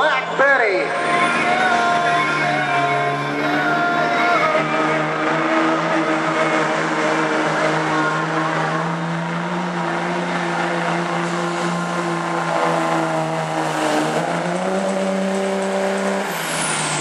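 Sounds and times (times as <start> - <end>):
high whine: 0.2 - 9.0
truck engine at high revs: 0.6 - 17.0.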